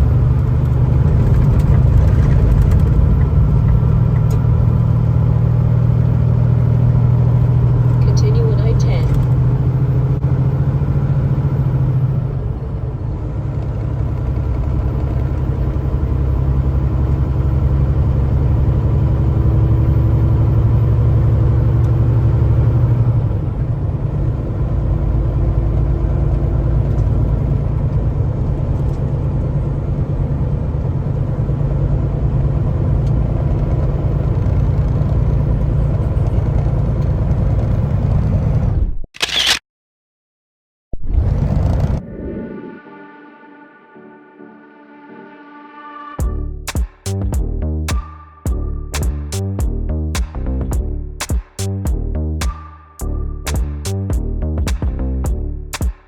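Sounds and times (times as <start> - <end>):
tyre and road rumble: 0.0 - 20.2, 41.0 - 42.2
truck engine drone: 0.0 - 38.8, 41.1 - 56.0.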